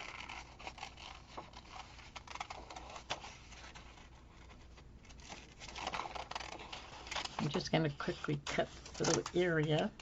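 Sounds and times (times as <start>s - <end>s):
scissors snipping paper: 0.0s - 3.9s, 5.2s - 7.6s
paper rustling: 0.0s - 10.0s.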